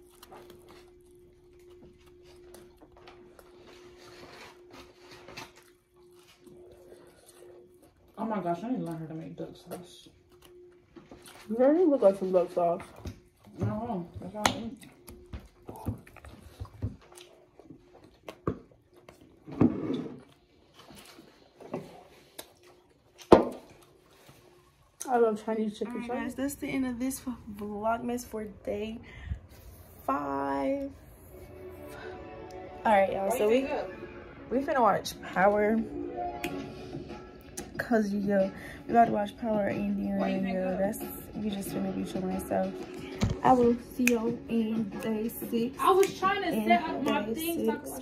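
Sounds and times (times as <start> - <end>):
chewing and biting: 0.0 - 25.1
clicks and rustles of eating: 0.0 - 25.1.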